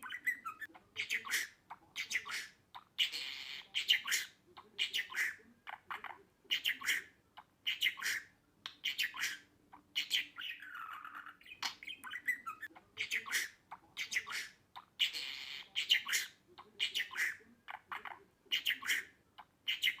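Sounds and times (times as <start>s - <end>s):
budgerigar chirping: 0.0s - 20.0s.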